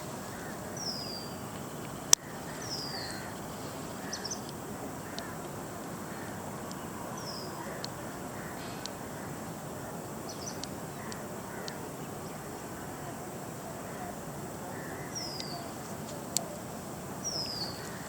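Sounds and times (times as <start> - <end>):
background hiss: 0.0 - 18.0
bird chirp: 0.0 - 18.0
faint clicks: 1.5 - 5.6, 6.6 - 6.9, 7.6 - 9.0, 10.4 - 11.8, 15.2 - 16.6.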